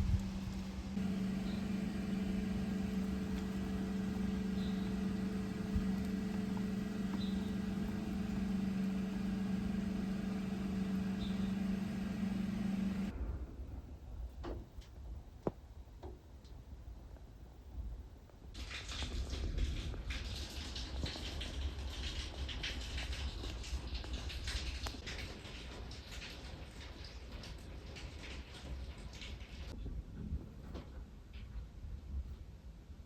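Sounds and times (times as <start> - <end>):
low machine hum: 0.0 - 13.1
faint clicks: 0.1 - 13.1.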